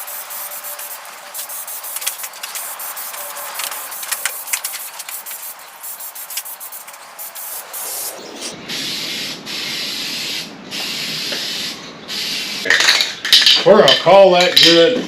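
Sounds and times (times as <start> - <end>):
spray can rattling when shaken: 0.0 - 8.1
spray can hissing: 0.0 - 12.7.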